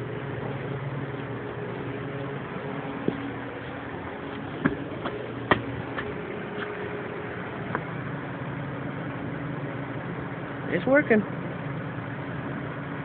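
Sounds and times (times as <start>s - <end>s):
exhaust fan humming: 0.0s - 13.0s.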